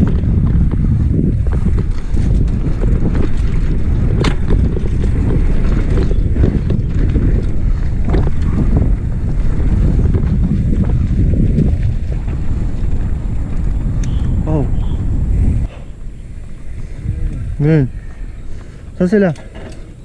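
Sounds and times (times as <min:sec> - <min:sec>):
wind rumble on microphone: 0:00.0 - 0:20.0
light rattles: 0:14.8 - 0:20.0.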